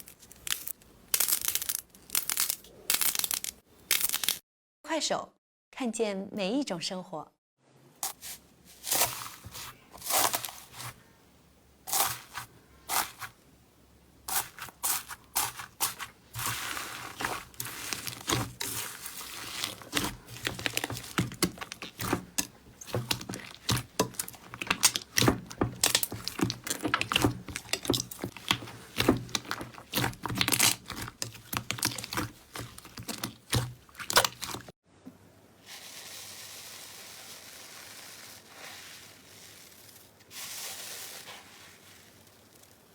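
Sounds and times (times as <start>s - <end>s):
slime crackling and popping: 0.0s - 4.4s, 14.3s - 34.7s
steady soft hiss: 35.0s - 42.9s.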